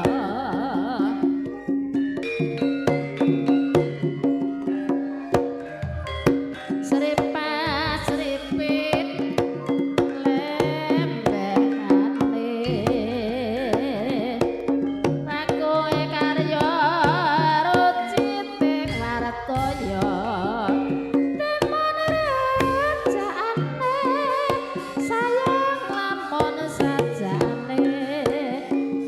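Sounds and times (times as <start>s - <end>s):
hand drum patterns: 0.0s - 29.0s
wavering vocal melody: 0.0s - 29.0s.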